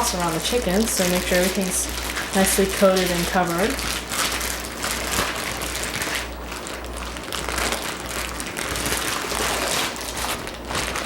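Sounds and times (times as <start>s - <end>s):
plastic zipper bag crinkling: 0.0s - 11.0s.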